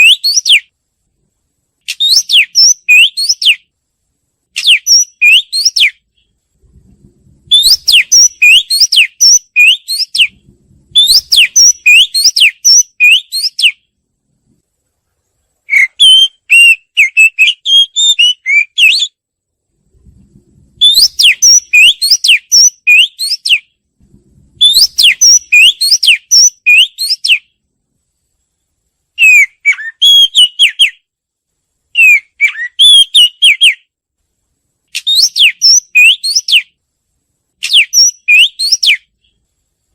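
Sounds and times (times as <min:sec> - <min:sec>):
magpie-robin whistled song: 0:00.0 - 0:00.7, 0:01.9 - 0:03.7, 0:04.6 - 0:06.3, 0:07.5 - 0:13.9, 0:15.7 - 0:19.2, 0:20.8 - 0:23.8, 0:24.6 - 0:27.6, 0:29.2 - 0:31.1, 0:31.9 - 0:33.9, 0:34.9 - 0:36.8, 0:37.6 - 0:39.3.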